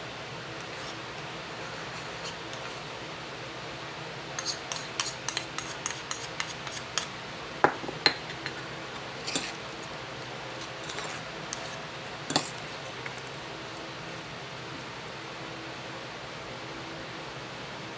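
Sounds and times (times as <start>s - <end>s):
kitchen utensils and dishes clinking: 10.6s - 13.2s.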